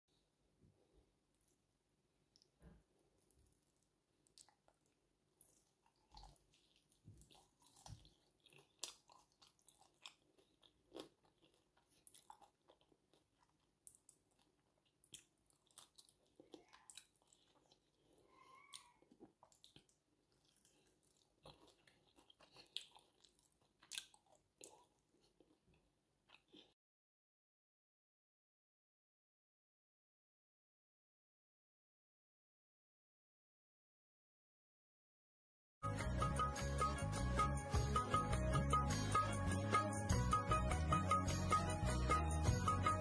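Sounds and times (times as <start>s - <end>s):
person chewing crunchy food: 3.1s - 26.8s.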